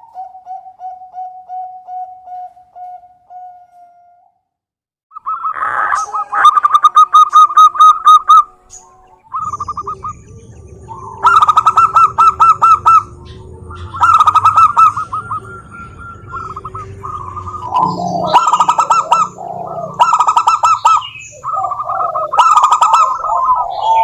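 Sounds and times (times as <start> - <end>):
doves cooing: 5.2 - 24.0
faint low rumble: 8.9 - 24.0.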